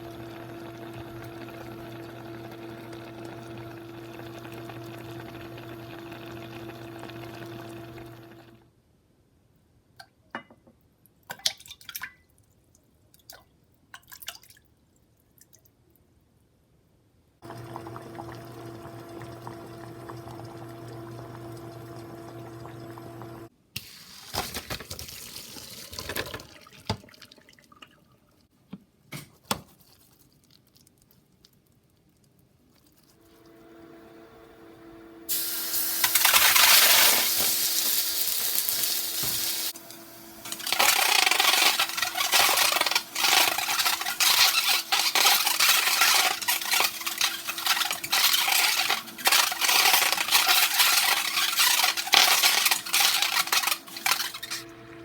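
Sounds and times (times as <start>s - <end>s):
tap water running into sink: 17.4s - 28.0s, 35.3s - 55.0s.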